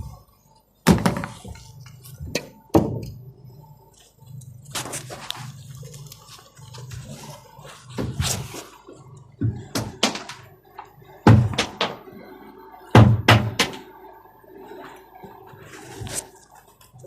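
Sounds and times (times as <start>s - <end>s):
faint steady hum: 0.0s - 17.0s
thuds and sharp knocks: 0.9s - 1.4s, 11.3s - 12.0s, 13.0s - 13.8s.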